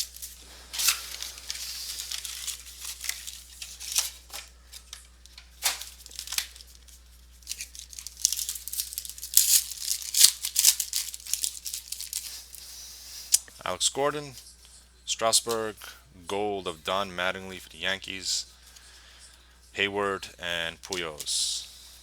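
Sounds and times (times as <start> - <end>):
packaging torn and crinkled: 0.0 - 12.6.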